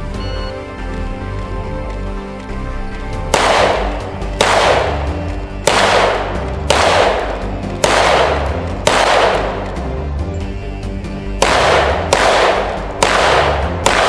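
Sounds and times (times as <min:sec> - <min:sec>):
background music: 0:00.0 - 0:14.0
echoing gunshots: 0:03.3 - 0:09.9, 0:11.3 - 0:14.0.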